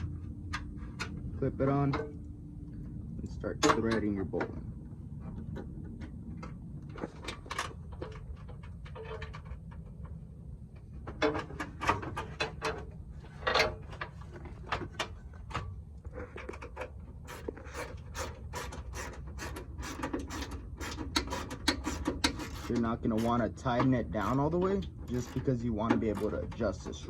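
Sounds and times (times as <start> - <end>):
steady low hum: 0.0 - 27.0
hand tool clicking and scraping: 11.2 - 27.0.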